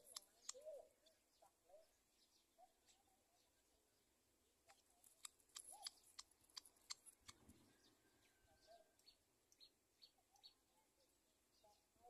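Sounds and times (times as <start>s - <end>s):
sharp ticks: 0.0s - 0.6s, 4.7s - 7.4s
faint high bird chirps: 0.0s - 12.0s.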